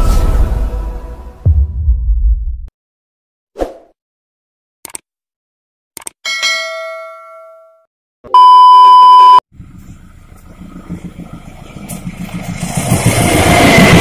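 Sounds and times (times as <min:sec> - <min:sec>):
loud electronic beep: 0:08.3 - 0:09.4
approaching train rumble: 0:09.6 - 0:14.0.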